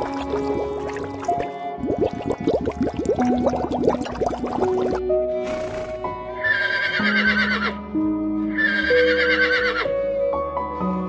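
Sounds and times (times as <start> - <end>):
soft background music: 0.0 - 11.0
horse whinnying: 5.4 - 7.8, 8.6 - 9.9.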